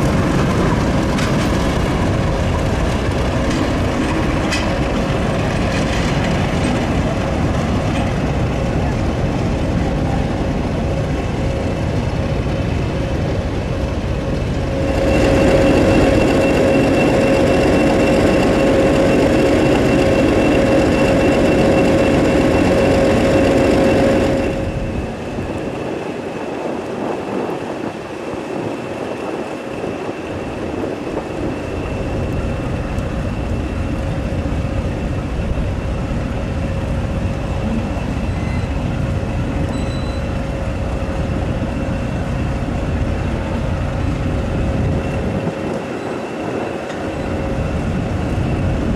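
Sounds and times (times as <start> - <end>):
steady tones: 0.0 - 26.2
diesel locomotive engine running: 0.0 - 48.9.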